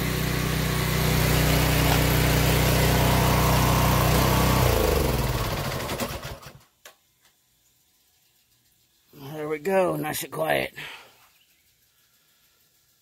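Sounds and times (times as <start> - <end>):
pressure washer engine winding down: 0.0 - 6.6.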